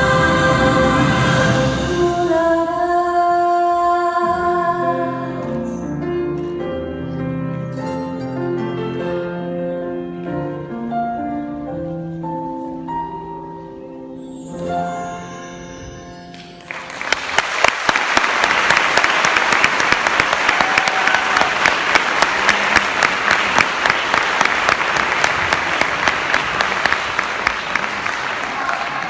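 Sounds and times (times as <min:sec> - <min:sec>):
music: 0:00.0 - 0:29.0
audience applause: 0:16.6 - 0:29.0.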